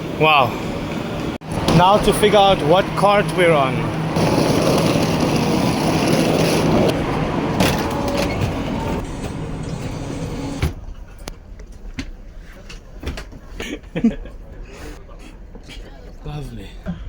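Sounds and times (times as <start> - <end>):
train rushing noise: 0.0 - 13.6
train low hum: 0.0 - 17.0.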